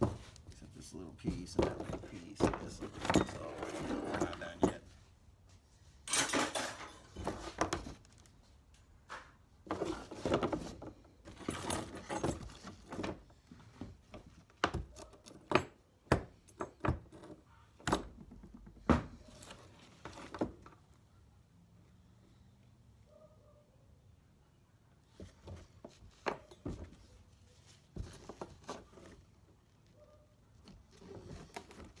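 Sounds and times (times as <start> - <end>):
scrap metal clanking into buckets: 6.0 - 7.8.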